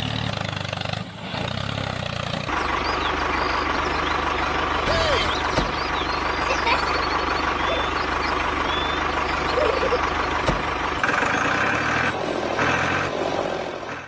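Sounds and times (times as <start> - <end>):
vehicle engine throbbing: 0.0 - 14.0.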